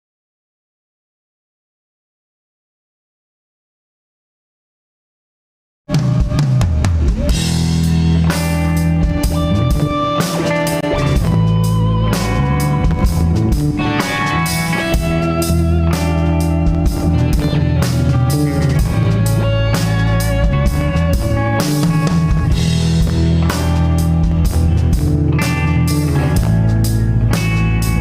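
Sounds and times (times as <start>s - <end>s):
bass guitar: 5.9s - 28.0s
drum kit: 5.9s - 28.0s
electric guitar lead: 5.9s - 28.0s.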